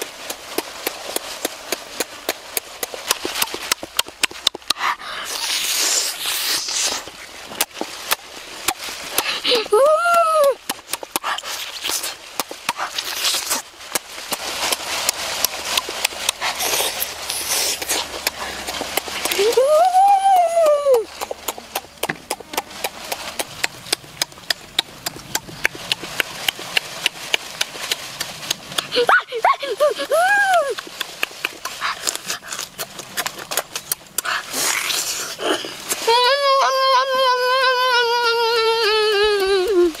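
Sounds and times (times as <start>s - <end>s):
lip smacks and chewing clicks: 0.0s - 9.7s, 10.5s - 19.7s, 20.3s - 36.0s
person humming mmm: 9.2s - 10.6s, 19.3s - 21.8s, 34.5s - 40.0s.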